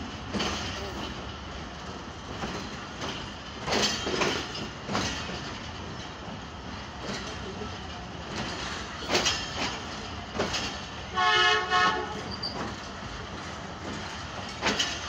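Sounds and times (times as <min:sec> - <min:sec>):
train wheels knocking over rail joints: 0:00.1 - 0:07.6, 0:08.2 - 0:15.0
locomotive horn blast: 0:11.1 - 0:12.3.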